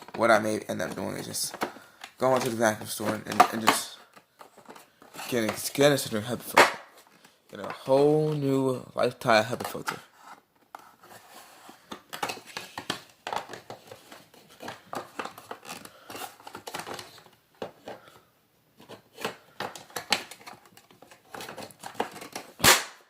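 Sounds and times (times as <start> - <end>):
plastic parts clicking and tapping: 0.8 - 5.7, 11.8 - 18.2, 18.8 - 22.7.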